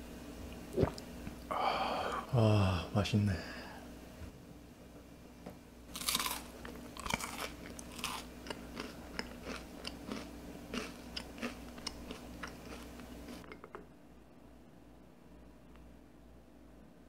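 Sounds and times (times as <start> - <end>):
chewing crunchy bread: 5.9 - 13.6.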